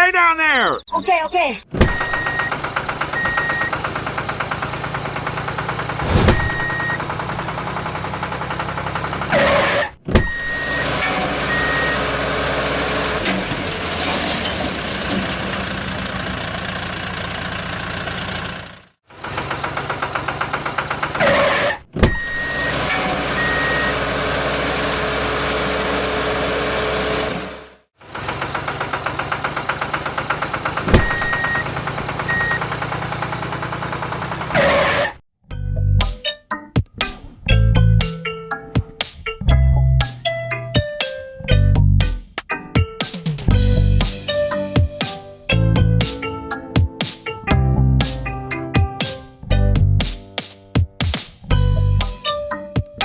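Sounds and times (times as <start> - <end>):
vehicle engine running: 2.0 - 10.0, 10.7 - 21.8, 22.4 - 35.2
high reversing alarm beeps: 6.4 - 7.0, 10.2 - 12.0, 22.1 - 24.0, 31.0 - 31.7, 32.3 - 32.7.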